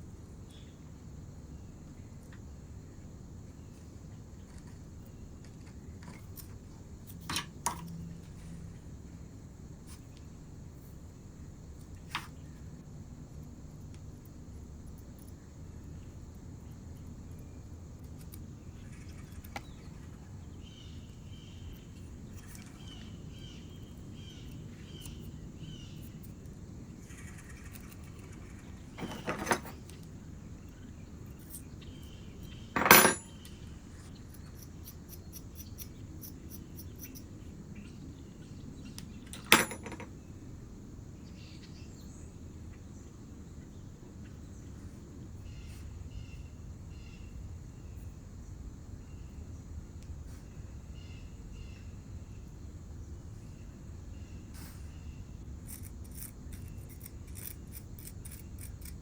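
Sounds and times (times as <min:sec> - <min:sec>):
hand tools knocking on hard surface: 0:32.8 - 0:33.2, 0:39.5 - 0:40.1.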